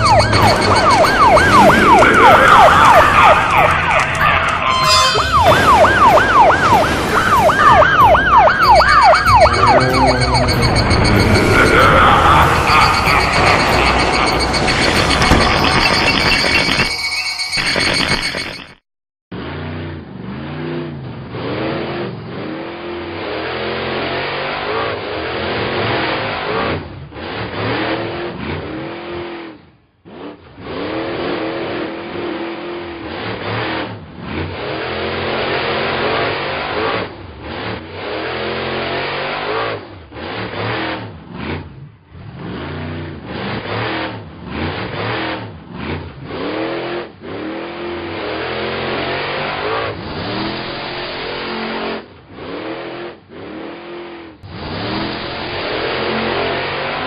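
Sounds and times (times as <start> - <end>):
cartoon car engine revving: 0.0 - 16.9, 19.3 - 57.0.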